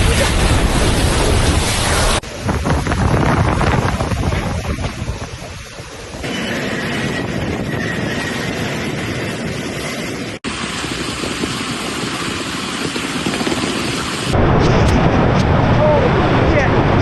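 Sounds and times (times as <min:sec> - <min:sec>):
rain: 0:00.0 - 0:06.3, 0:10.5 - 0:17.0
storm wind: 0:00.0 - 0:17.0.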